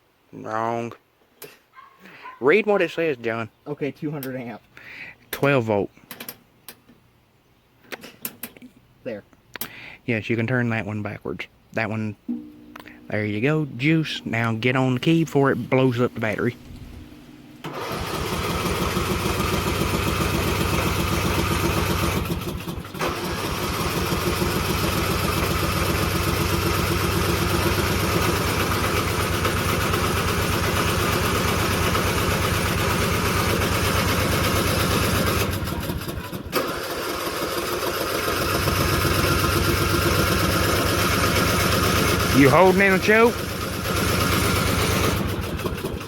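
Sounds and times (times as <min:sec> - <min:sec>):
mower engine running: 0:13.9 - 0:46.0.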